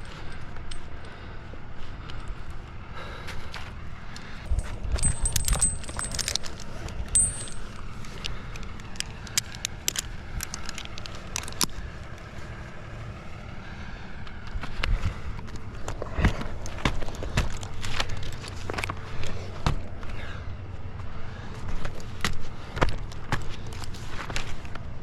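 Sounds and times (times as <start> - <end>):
climbing hardware clinking: 0.0 - 1.1, 4.4 - 11.7
short metallic ring: 5.0 - 6.6, 7.2 - 7.8.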